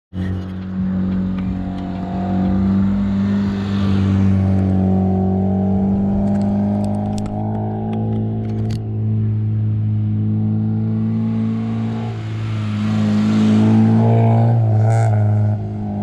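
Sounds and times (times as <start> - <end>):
car engine running: 0.2 - 12.7.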